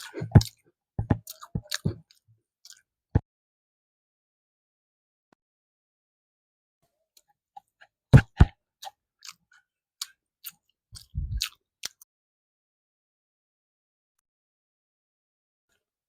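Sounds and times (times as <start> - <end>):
wet chewing clicks and smacks: 0.0 - 0.6, 1.2 - 2.9, 8.3 - 12.0.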